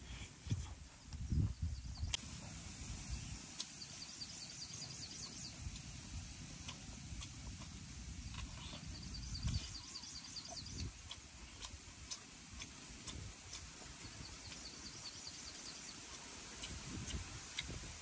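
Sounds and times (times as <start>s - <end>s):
sharp clicks of chewing: 3.5s - 4.0s, 5.0s - 17.9s.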